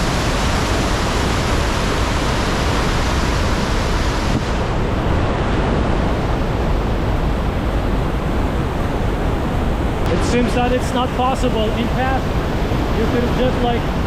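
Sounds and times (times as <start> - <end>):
large waterfall roaring: 0.0 - 14.0.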